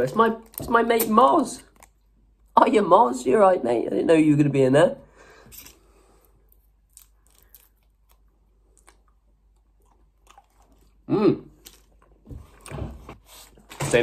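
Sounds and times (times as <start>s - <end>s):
person chewing gum: 5.5s - 13.7s.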